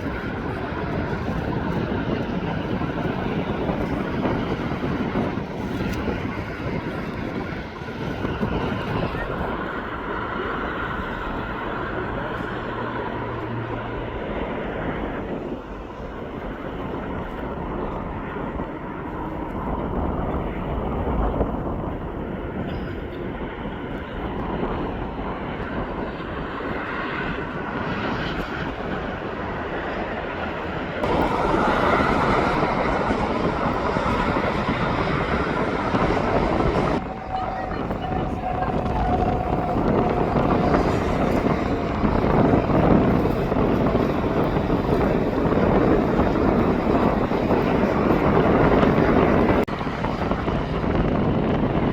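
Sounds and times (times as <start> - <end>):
jet engine rumble and hiss: 0.0 - 51.9.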